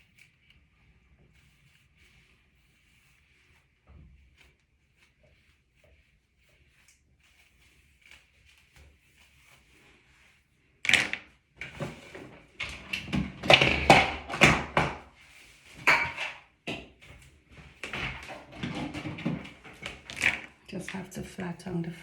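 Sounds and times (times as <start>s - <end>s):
handling knocks and rustles: 10.9s - 21.9s.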